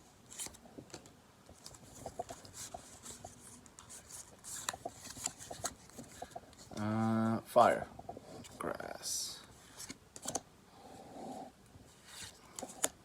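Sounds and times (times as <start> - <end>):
trading cards clicking and rustling: 0.3 - 6.9, 9.8 - 10.4.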